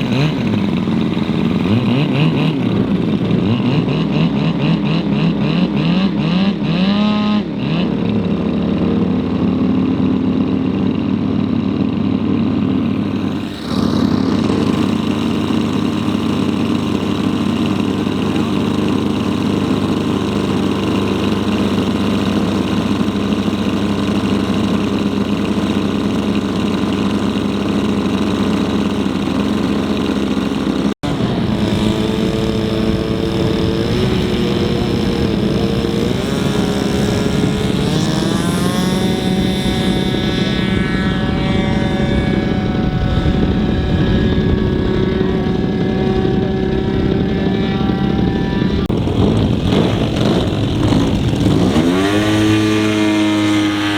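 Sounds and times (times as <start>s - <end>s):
model airplane engine running: 0.0s - 53.9s.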